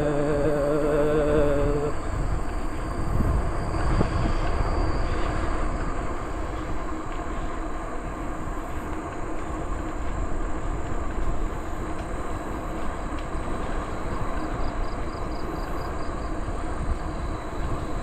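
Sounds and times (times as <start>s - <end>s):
bicycle tyre rumble: 0.0s - 18.0s
wind rush over microphone: 0.0s - 18.0s
faint high ticks: 5.7s - 16.6s.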